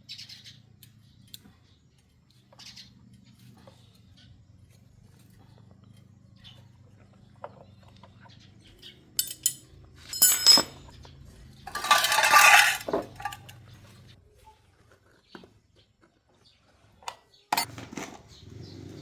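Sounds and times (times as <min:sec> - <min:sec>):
metal clinking: 0:09.2 - 0:10.9, 0:11.7 - 0:13.6
metal clattering and rattling: 0:09.2 - 0:11.0, 0:11.7 - 0:13.6.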